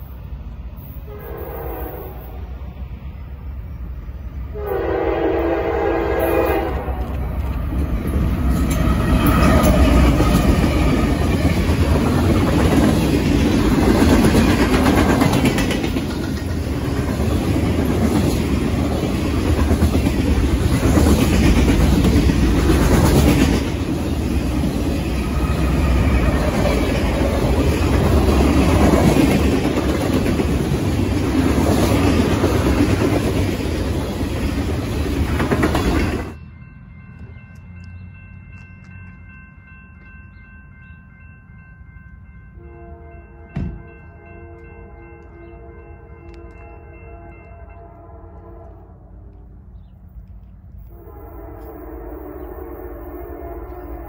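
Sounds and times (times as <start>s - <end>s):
train rumbling past: 0.0s - 54.0s
train horn blast: 1.0s - 2.5s, 4.5s - 7.2s, 42.6s - 49.6s, 50.8s - 54.0s
wheels clattering on rails: 6.9s - 36.4s.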